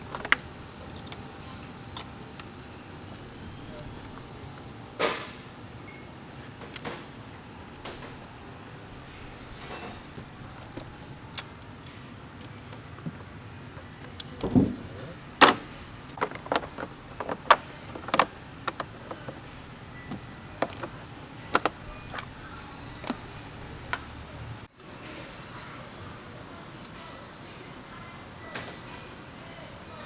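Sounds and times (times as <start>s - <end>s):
hand tools clicking and clinking: 0.0s - 5.2s, 5.9s - 24.2s.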